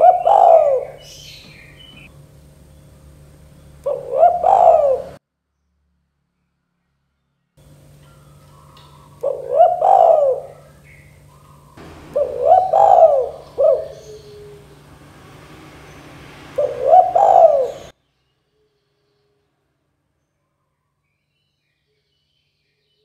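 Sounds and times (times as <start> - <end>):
dove cooing: 0.0 - 2.1, 3.1 - 5.2, 8.0 - 17.9
steady low hum: 0.0 - 5.2, 7.6 - 17.9.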